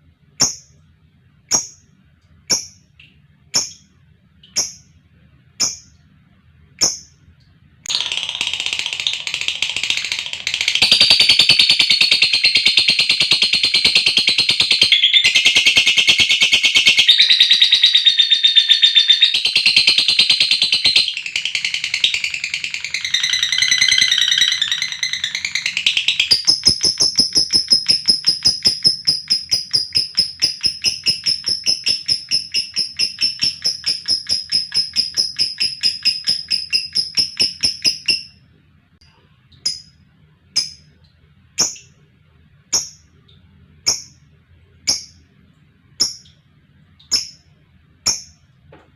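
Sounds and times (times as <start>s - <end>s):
sharp bird chirps: 0.4s - 0.8s, 1.5s - 5.0s, 5.6s - 6.0s, 6.8s - 7.2s, 7.9s - 38.4s, 47.0s - 47.5s
lovebird chattering trill: 1.5s - 1.8s, 3.6s - 3.9s, 4.6s - 4.9s, 7.9s - 38.4s.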